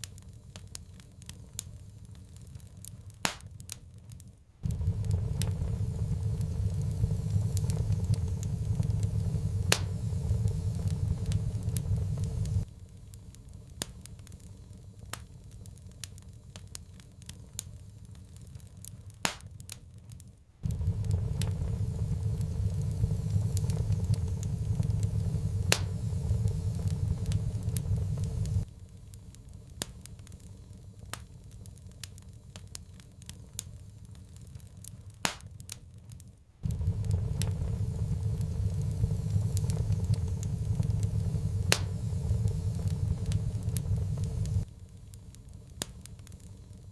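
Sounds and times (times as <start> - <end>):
wood fire crackling and popping: 0.0 - 46.9
loud low rumble: 4.6 - 12.7, 20.6 - 28.7, 36.6 - 44.7.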